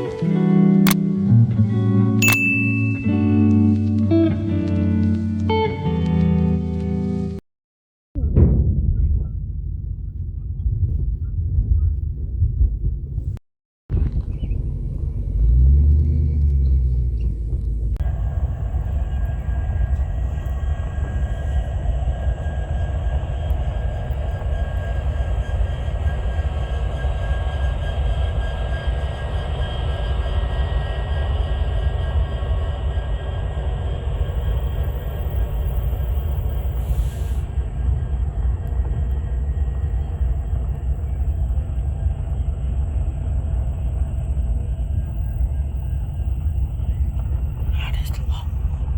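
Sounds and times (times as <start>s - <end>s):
thin high tones: 2.2s - 3.8s
freight train wheels rumbling: 16.9s - 47.6s.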